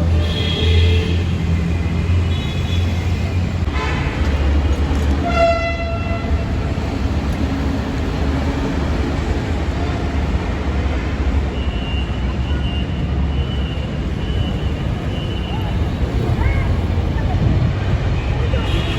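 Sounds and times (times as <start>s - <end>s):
metro train rumbling: 0.0s - 18.9s
train horn tone: 5.2s - 6.6s.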